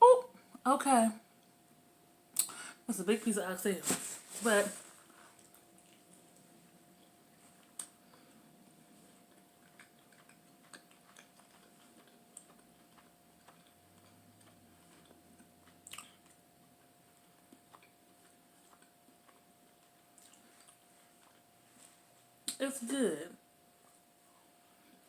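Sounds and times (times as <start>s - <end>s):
faint steady hum: 0.0s - 25.0s
lip smack: 2.4s - 2.6s
chewing and mouth clicks: 5.4s - 21.5s.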